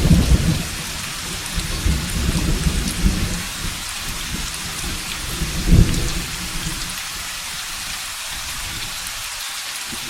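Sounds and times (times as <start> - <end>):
low thunder rumble: 0.0 - 7.3
steady rain: 0.0 - 10.0.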